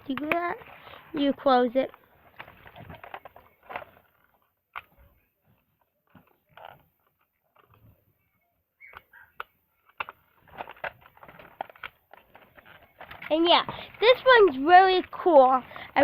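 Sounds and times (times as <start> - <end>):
plastic toy clicking: 0.1 - 4.9, 8.8 - 15.2.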